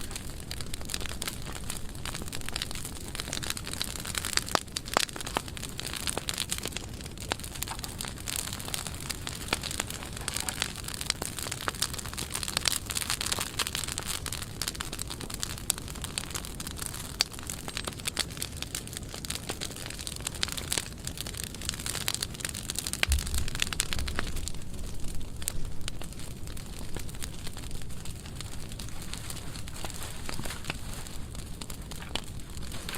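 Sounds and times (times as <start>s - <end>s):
fire crackling and popping: 0.0s - 32.9s
low thumps: 23.0s - 25.2s.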